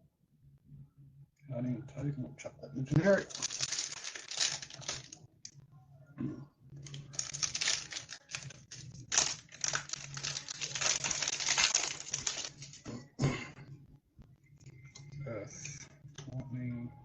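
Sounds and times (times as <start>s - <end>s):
foil wrapper crinkling: 3.0s - 5.2s, 6.8s - 12.9s.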